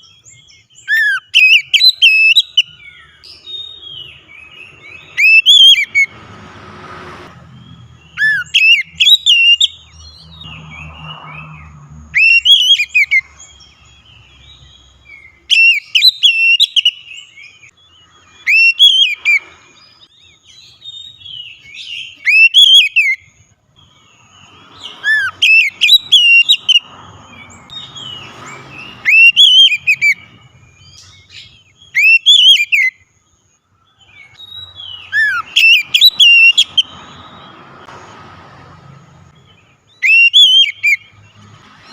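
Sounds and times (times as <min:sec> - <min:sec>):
bird singing whistled phrases: 0:00.0 - 0:06.1, 0:08.0 - 0:10.1, 0:12.2 - 0:17.7, 0:18.4 - 0:23.3, 0:24.8 - 0:26.8, 0:28.8 - 0:33.0, 0:34.1 - 0:37.5, 0:39.9 - 0:41.1.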